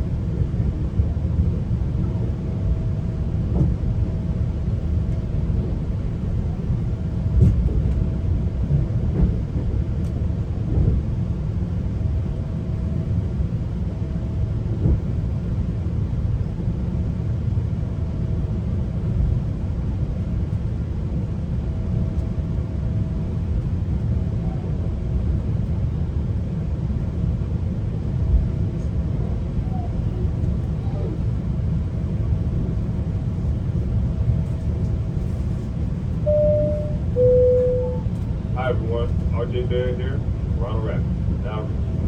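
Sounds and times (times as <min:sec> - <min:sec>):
train coach rumbling on track: 0:00.0 - 0:42.0
faint whine: 0:36.2 - 0:41.8.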